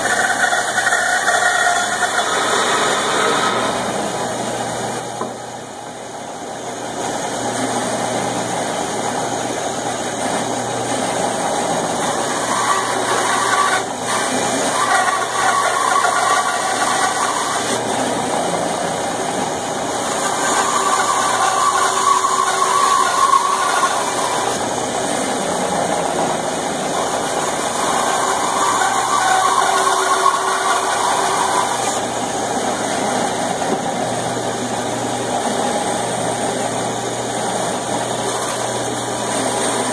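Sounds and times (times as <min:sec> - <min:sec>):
band saw cutting wood: 0:00.0 - 0:04.6, 0:10.2 - 0:34.6, 0:37.4 - 0:39.9.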